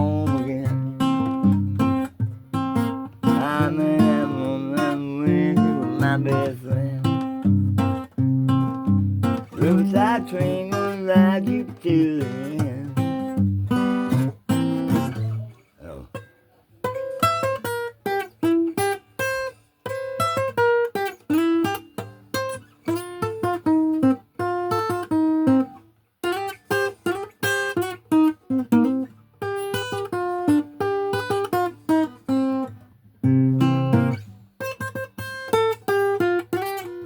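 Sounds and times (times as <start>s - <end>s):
acoustic guitar picking: 0.0s - 37.0s.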